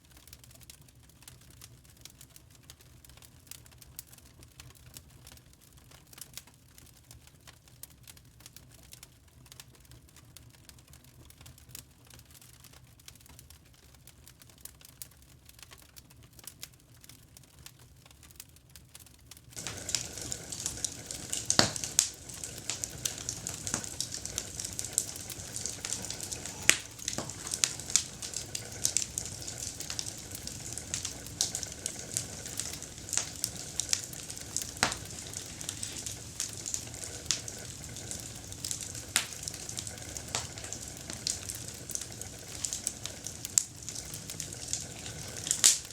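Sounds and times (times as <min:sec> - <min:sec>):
campfire crackling and popping: 0:19.6 - 0:45.9
steady fire hiss: 0:19.6 - 0:45.9.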